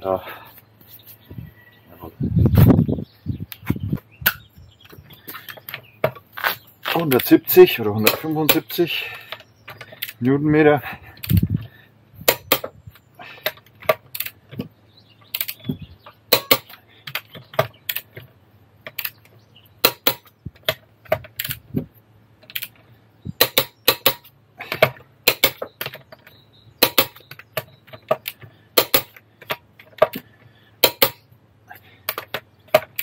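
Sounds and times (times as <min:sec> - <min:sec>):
metallic clicks of hand tools: 0:08.0 - 0:10.3, 0:12.2 - 0:12.7, 0:13.4 - 0:14.7, 0:15.3 - 0:15.7, 0:16.3 - 0:18.2, 0:18.8 - 0:21.6, 0:22.4 - 0:22.8, 0:23.4 - 0:31.3.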